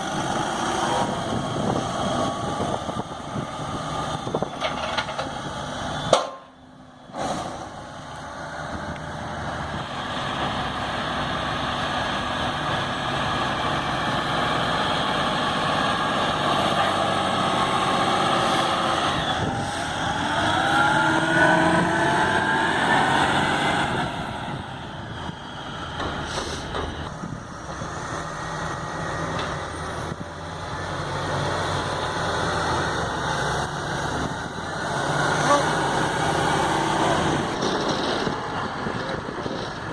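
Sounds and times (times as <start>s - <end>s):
diesel farm machinery running: 0.0s - 39.9s
rising machine whine: 17.6s - 26.1s.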